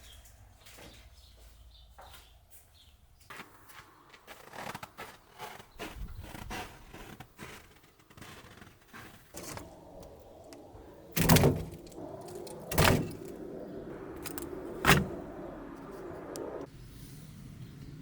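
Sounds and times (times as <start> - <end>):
heavy thuds: 9.4 - 16.6
low steady hum: 9.4 - 17.6.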